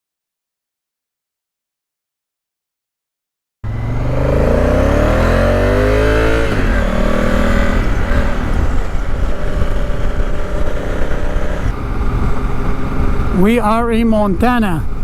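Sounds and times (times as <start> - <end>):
motorcycle engine accelerating: 3.6 - 13.6
wind rush on microphone: 3.8 - 15.0.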